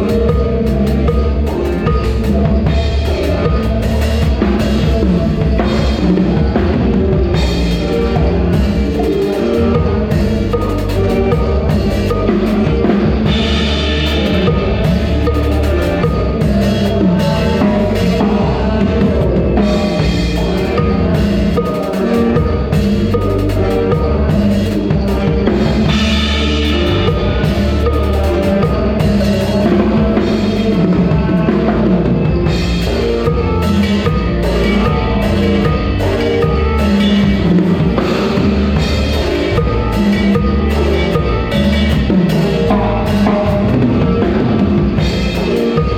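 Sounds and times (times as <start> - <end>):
drum kit beat: 0.0 - 45.9
live band music: 0.0 - 45.9.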